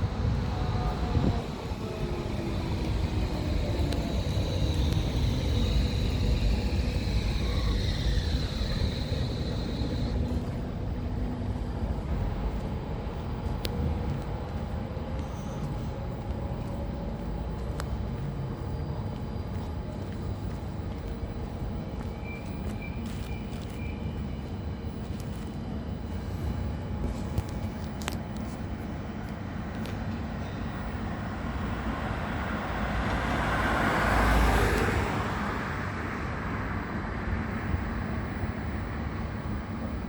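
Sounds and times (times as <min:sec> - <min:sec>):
high wheel squeal: 0:00.0 - 0:11.2
tram motor tones: 0:00.0 - 0:40.0
tram wheels rumbling on rails: 0:00.0 - 0:40.0.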